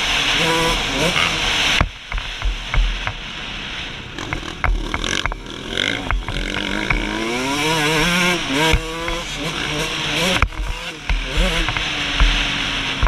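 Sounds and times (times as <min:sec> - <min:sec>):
two-stroke dirt bike engine: 0:00.0 - 0:13.0
bike knocks and thumps: 0:01.8 - 0:03.2, 0:04.2 - 0:09.5, 0:10.2 - 0:12.4.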